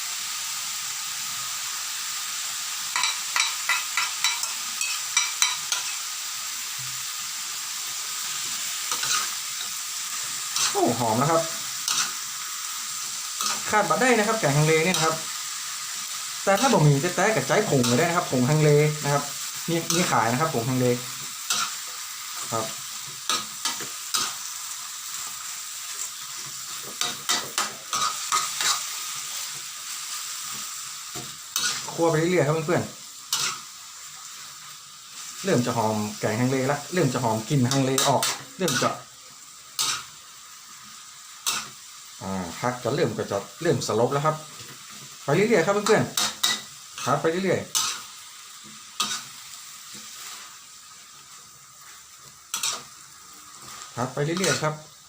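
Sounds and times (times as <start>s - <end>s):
food sizzling in a pan: 0.0s - 55.0s
spatula scraping and knocking pan: 3.0s - 6.0s
spatula scraping a pan: 3.0s - 6.1s, 8.1s - 25.3s, 25.9s - 32.2s, 33.2s - 34.5s, 37.4s - 39.0s, 39.8s - 40.2s, 41.4s - 41.8s, 44.6s - 50.6s, 51.8s - 54.8s.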